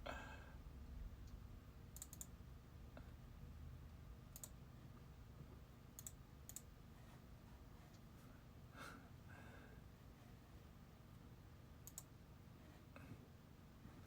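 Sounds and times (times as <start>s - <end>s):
faint room hum: 0.0s - 14.0s
small sharp clicks: 2.0s - 2.3s, 4.3s - 4.6s, 6.0s - 6.7s, 11.8s - 12.1s.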